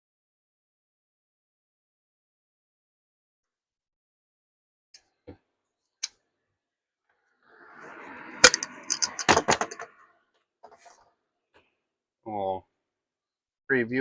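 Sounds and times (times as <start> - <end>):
sharp clacks: 8.4 - 9.9.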